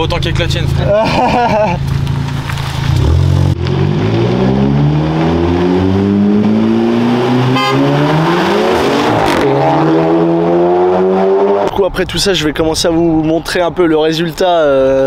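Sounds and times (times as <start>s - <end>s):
car engine accelerating: 0.2s - 11.8s.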